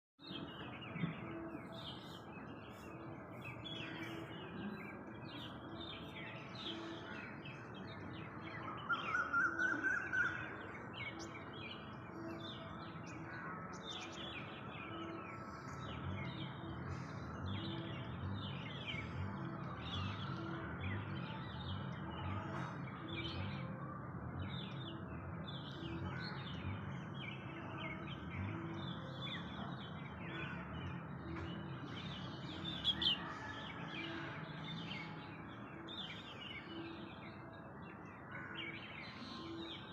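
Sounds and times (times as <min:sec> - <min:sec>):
small birds chirping: 0:00.2 - 0:09.6.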